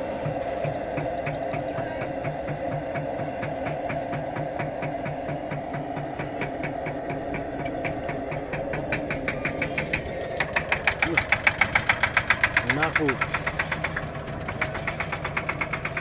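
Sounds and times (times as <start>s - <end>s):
single-cylinder engine beats: 0.0s - 16.0s.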